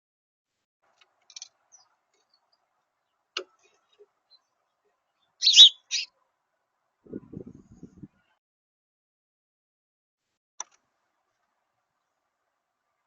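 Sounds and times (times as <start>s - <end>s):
high bird calls: 5.2s - 6.2s.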